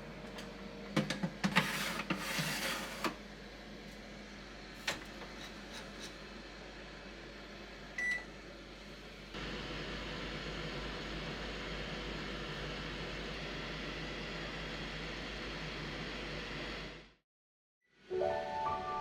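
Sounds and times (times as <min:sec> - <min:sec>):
appliance steady hum: 0:00.0 - 0:17.2
knocks and clicks in kitchen: 0:00.3 - 0:01.6
oven electronic beep: 0:08.0 - 0:08.3.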